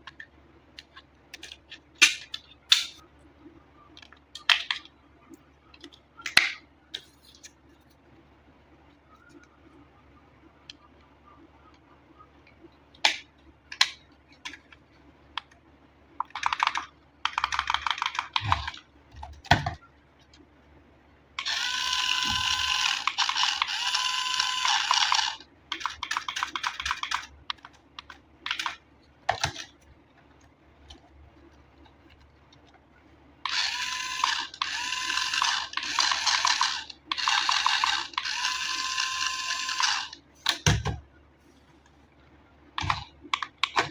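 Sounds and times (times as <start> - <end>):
toy car motor whirring: 21.4 - 25.4, 33.5 - 40.2.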